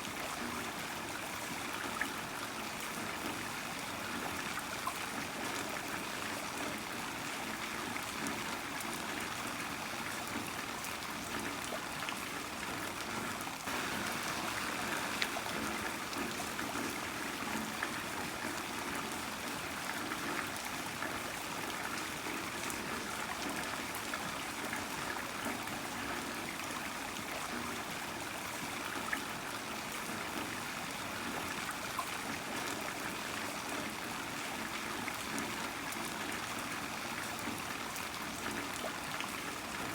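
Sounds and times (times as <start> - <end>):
runoff water trickling: 0.0 - 39.9
heavy rain falling: 13.7 - 19.2.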